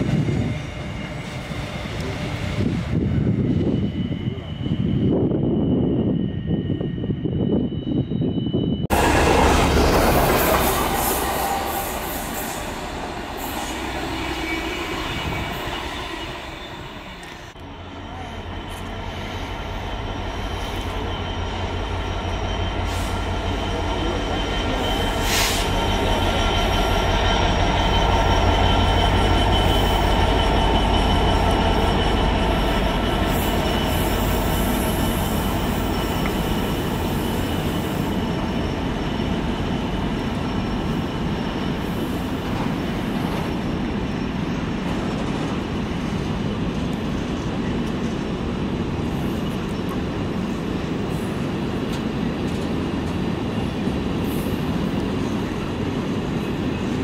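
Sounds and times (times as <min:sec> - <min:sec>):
loud train sound: 0:00.0 - 0:57.0.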